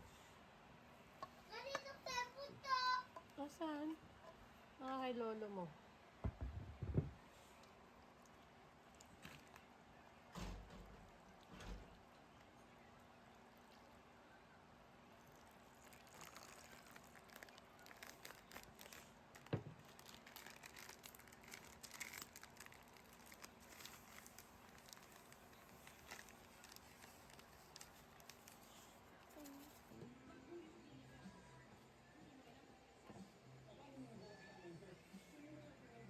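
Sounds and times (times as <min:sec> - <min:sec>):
faint crinkling: 0:15.1 - 0:30.0.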